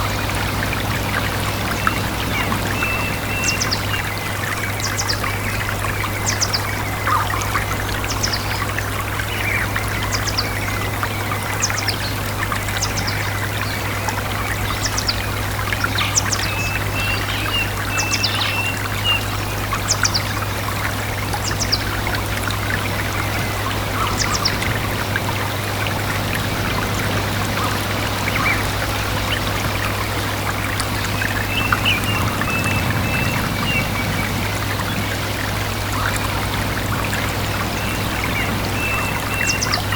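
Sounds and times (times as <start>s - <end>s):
stream trickling: 0.0s - 39.9s
bird warbling call: 23.1s - 25.0s.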